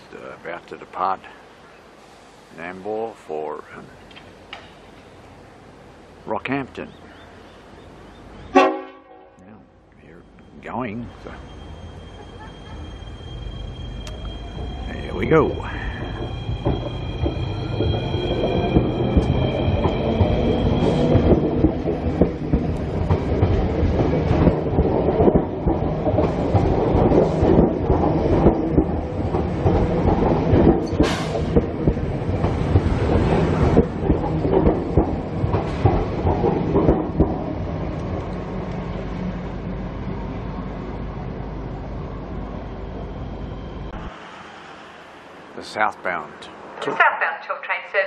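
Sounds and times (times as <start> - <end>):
train wheels rumbling on rail: 10.0 - 46.8
wheels clicking over rail joints: 14.0 - 39.0.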